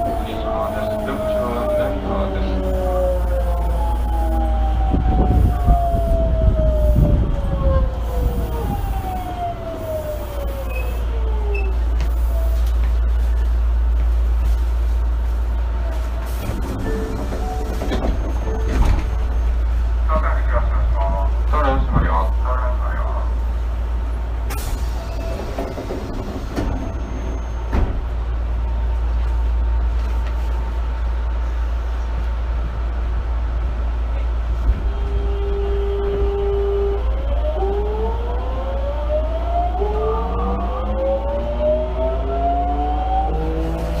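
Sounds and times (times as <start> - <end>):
wheel and rail rumble: 0.0 - 44.0
wheels clicking on rail joints: 15.9 - 19.4, 24.6 - 27.9.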